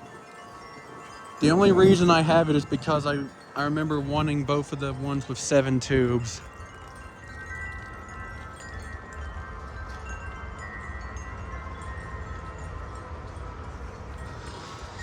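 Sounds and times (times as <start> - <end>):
low wind rumble: 0.0 - 15.0
metal wind chimes ringing: 0.0 - 15.0.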